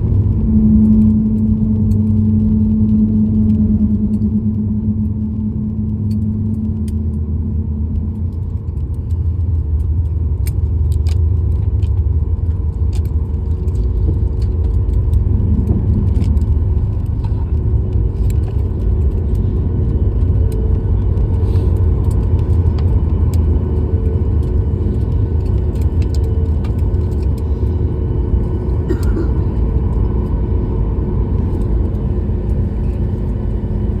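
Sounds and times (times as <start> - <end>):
faint steady tones: 0.0 - 9.7
airliner low rumble: 0.0 - 34.0
clicks and light rattles: 7.9 - 30.2.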